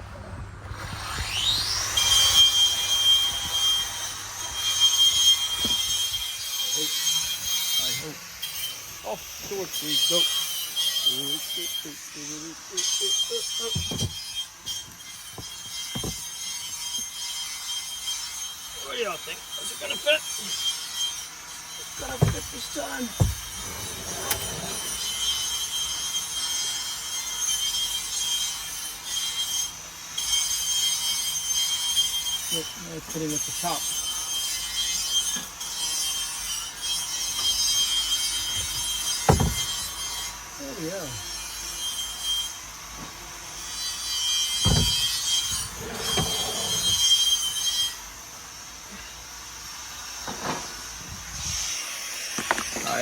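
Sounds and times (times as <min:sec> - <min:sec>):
panel scraping against interior: 0:22.0 - 0:22.5, 0:23.1 - 0:25.6, 0:38.5 - 0:39.9, 0:44.5 - 0:47.5
thump: 0:23.2 - 0:23.5, 0:39.3 - 0:39.7, 0:44.6 - 0:45.2.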